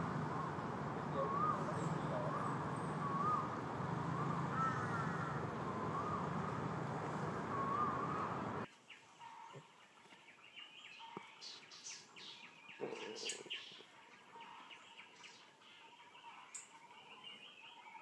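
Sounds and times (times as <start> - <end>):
background hiss: 0.0 - 9.2
wavy whistled bird call: 0.0 - 9.4.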